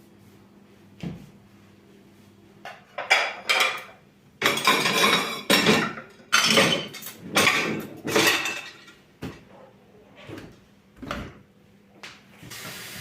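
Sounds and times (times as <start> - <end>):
dishes and cutlery clattering: 2.7 - 9.5.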